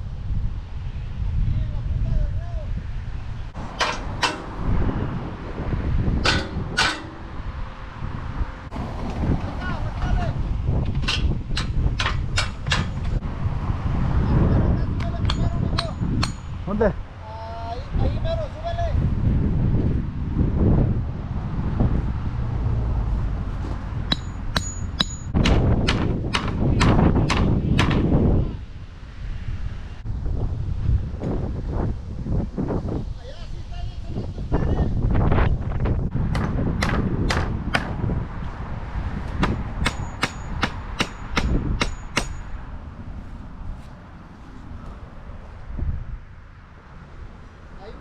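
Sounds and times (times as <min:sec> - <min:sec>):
wind: 0:00.0 - 0:48.0
hammer blows: 0:03.6 - 0:05.0, 0:06.2 - 0:07.6, 0:10.9 - 0:13.2, 0:15.0 - 0:16.7, 0:23.7 - 0:28.1, 0:36.2 - 0:38.0, 0:39.3 - 0:42.6.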